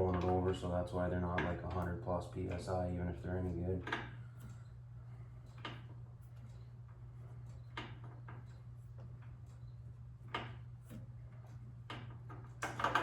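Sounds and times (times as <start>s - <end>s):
steady low hum: 0.0s - 13.0s
tools clicking and knocking: 11.9s - 13.0s.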